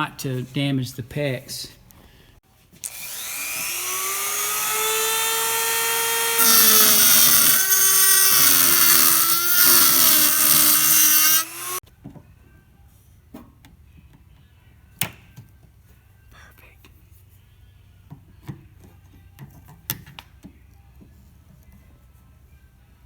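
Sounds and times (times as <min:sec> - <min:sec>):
cutoff wheel cutting metal: 0:02.8 - 0:11.8
rotary tool whine: 0:02.8 - 0:11.8.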